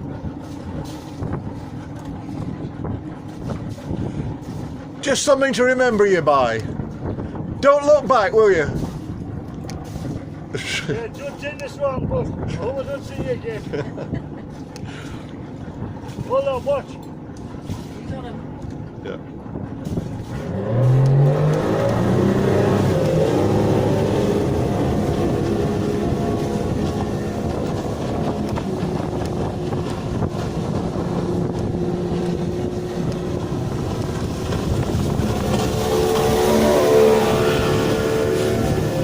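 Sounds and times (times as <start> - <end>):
motor engine running: 0.0 - 39.0.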